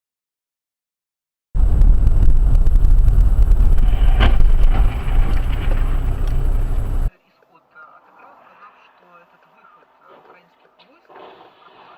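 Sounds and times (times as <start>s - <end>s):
vehicle road and wind rumble: 1.6s - 7.1s.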